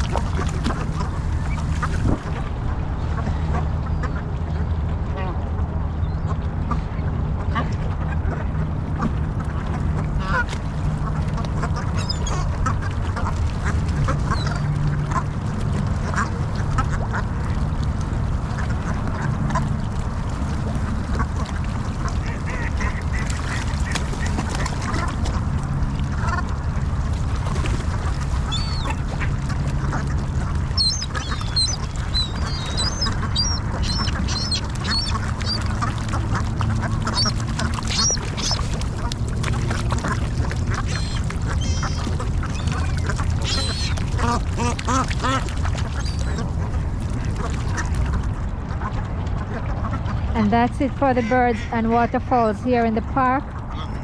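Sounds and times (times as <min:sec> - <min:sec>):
steady low rumble: 0:00.0 - 0:54.0
waterfowl flock calling: 0:03.1 - 0:04.6, 0:09.7 - 0:15.4, 0:16.0 - 0:17.6, 0:20.8 - 0:25.5, 0:26.1 - 0:26.8, 0:27.6 - 0:54.0
thin high squeaky calls: 0:28.2 - 0:29.0, 0:30.7 - 0:35.7, 0:37.0 - 0:38.7, 0:40.9 - 0:44.0.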